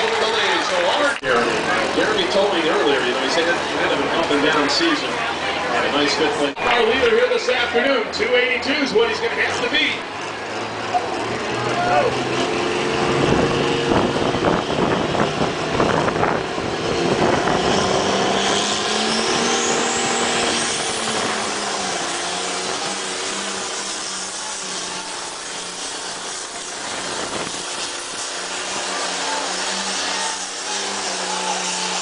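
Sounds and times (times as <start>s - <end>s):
tractor engine running hard: 0.0s - 32.0s.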